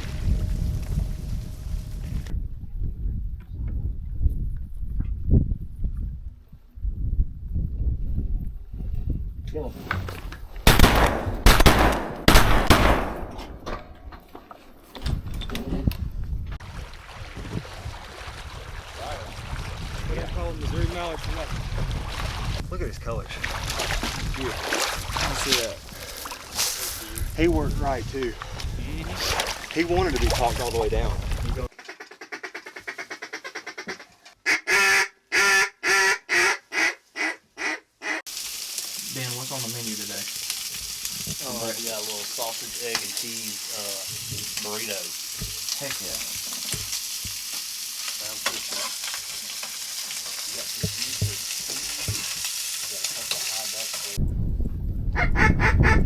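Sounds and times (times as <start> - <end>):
shotgun shots with echo: 10.7 - 13.6
duck call quacks: 31.8 - 38.2, 55.2 - 56.0.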